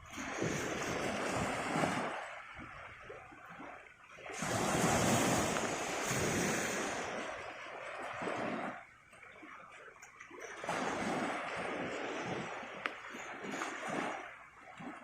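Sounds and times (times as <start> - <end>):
sea waves washing onto shore: 0.0 - 15.0.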